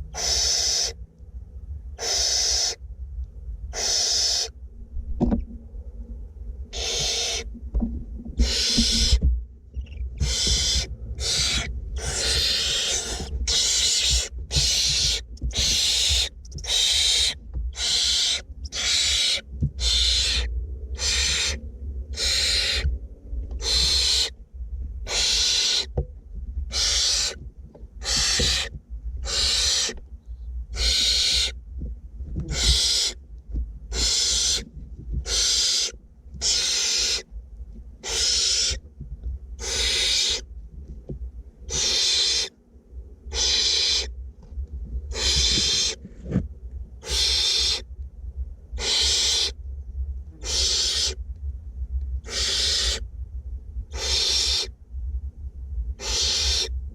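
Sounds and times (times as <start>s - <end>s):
owlets hissing begging calls: 0.1s - 1.0s, 2.0s - 2.8s, 3.8s - 4.5s, 6.8s - 7.5s, 8.4s - 9.2s, 10.2s - 21.6s, 22.2s - 22.9s, 23.6s - 24.3s, 25.1s - 25.9s, 26.7s - 27.4s, 28.0s - 30.0s, 30.8s - 31.6s, 32.5s - 33.2s, 33.9s - 34.6s, 35.3s - 37.2s, 38.0s - 38.8s, 39.6s - 40.4s, 41.7s - 42.5s, 43.3s - 44.1s, 45.1s - 46.0s, 47.0s - 47.8s, 48.8s - 49.6s, 50.4s - 51.2s, 52.2s - 53.0s, 54.0s - 54.7s, 56.0s - 56.7s.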